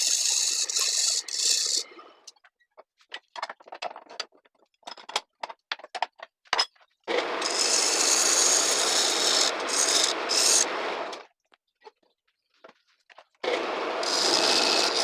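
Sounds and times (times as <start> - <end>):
lathe tool scraping wood: 0.0 - 2.0, 7.1 - 11.0, 13.4 - 15.0.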